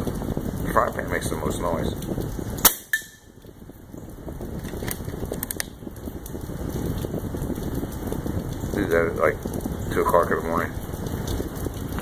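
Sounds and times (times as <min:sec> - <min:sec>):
rain pattering and crackling: 0:00.0 - 0:12.0.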